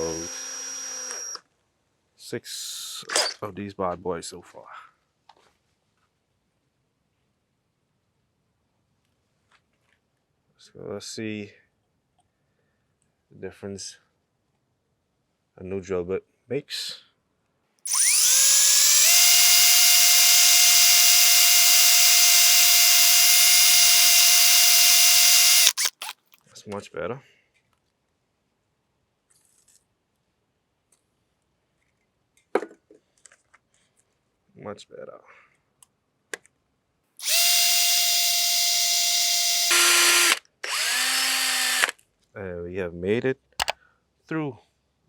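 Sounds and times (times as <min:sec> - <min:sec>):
electric drill whining: 0:00.0 - 0:01.4, 0:17.9 - 0:26.1, 0:37.2 - 0:41.9.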